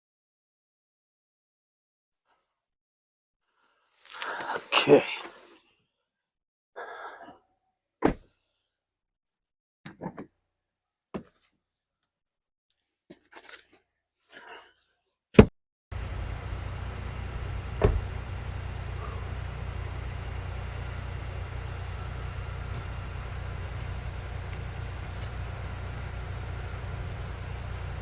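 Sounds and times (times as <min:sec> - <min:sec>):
dull thump: 0:15.9 - 0:28.0
outdoor rumble and hiss: 0:15.9 - 0:28.0
faint clicks and rustles: 0:16.0 - 0:28.0.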